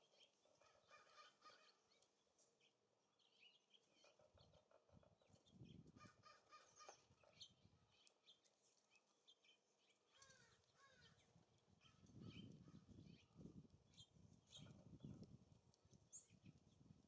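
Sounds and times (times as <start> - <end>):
faint songbird chirps: 1.7 - 6.0
wind rumbling on microphone: 4.9 - 6.2, 11.1 - 17.0.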